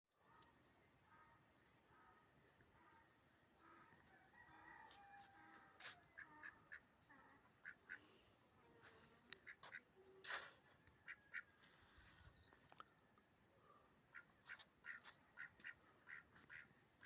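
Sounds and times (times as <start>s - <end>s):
fowl quacking: 5.5s - 8.1s, 11.0s - 11.5s, 14.1s - 17.0s.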